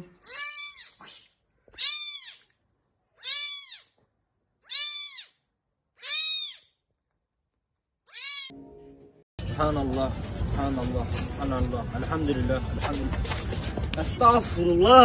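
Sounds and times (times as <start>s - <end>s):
cat meowing: 0.3s - 1.0s, 1.8s - 2.5s, 3.2s - 3.9s, 4.7s - 5.4s, 6.0s - 6.7s, 8.1s - 8.6s.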